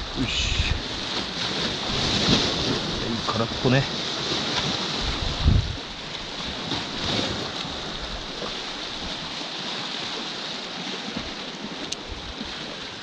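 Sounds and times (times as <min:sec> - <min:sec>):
surf on rocky shore: 0:00.0 - 0:13.0
wind buffeting microphone: 0:04.4 - 0:09.4.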